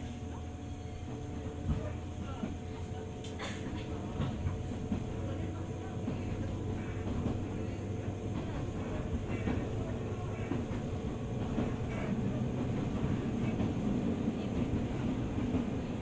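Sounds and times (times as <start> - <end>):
train wheels rumbling on rails: 0.0 - 16.0
light clicks from rails: 3.2 - 5.1.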